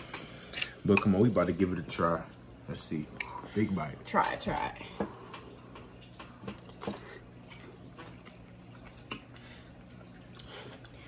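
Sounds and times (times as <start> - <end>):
person chewing: 5.3 - 11.0.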